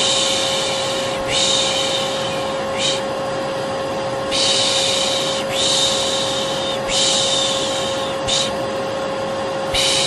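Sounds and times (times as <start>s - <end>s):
vacuum cleaner humming: 0.0s - 10.0s.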